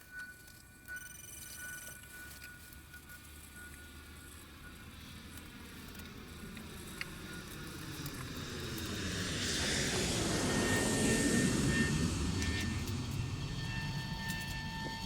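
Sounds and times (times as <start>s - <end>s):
engine of passing vehicle: 7.1s - 15.0s.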